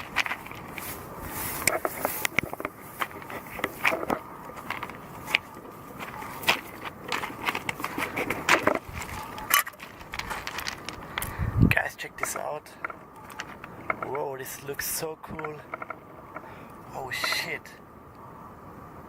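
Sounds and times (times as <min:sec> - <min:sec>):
footsteps crunching on gravel: 0:00.0 - 0:11.4
rustling: 0:00.0 - 0:11.5.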